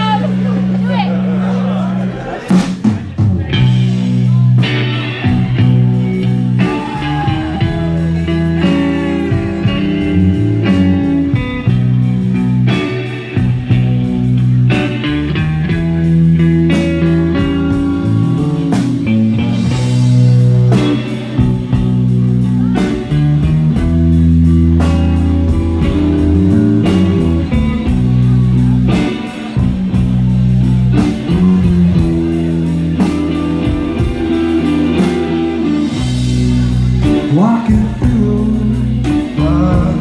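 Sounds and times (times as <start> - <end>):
bass notes: 0.0 - 40.0
drums keeping a beat: 0.0 - 40.0
electric guitar: 0.0 - 40.0.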